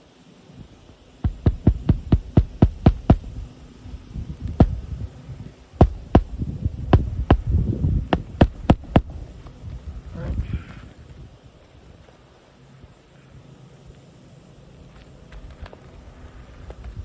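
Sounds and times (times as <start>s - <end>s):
hammer striking roofing nails: 1.2s - 3.4s, 5.8s - 7.5s, 8.1s - 9.1s.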